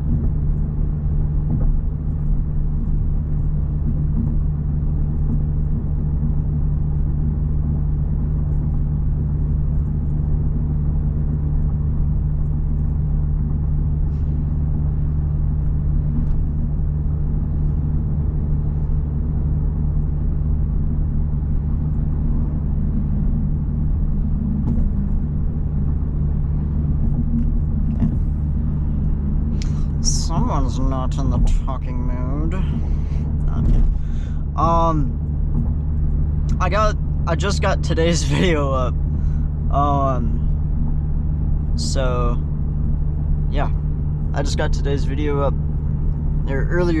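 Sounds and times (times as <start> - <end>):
car engine and road noise inside cabin: 0.0 - 47.0.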